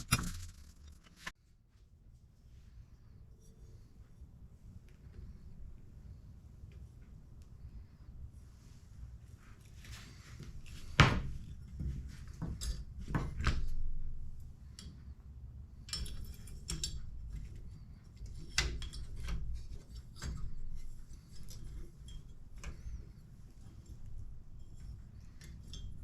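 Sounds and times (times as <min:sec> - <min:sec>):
small hard objects clicking and knocking: 0:00.0 - 0:01.3.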